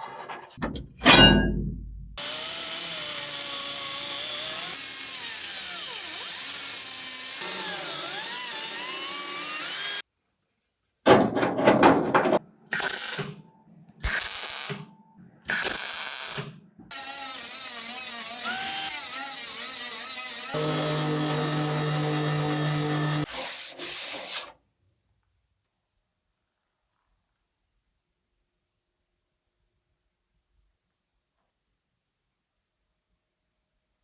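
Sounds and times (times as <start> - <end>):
handheld power tool running: 2.2 - 10.0, 12.7 - 13.4, 15.5 - 24.5.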